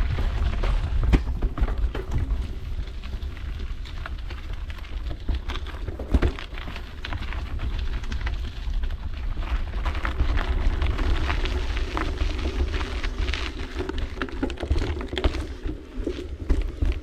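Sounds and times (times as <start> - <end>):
bike rattling: 0.0 - 17.0
bike tyres crackling over ground: 0.0 - 17.0.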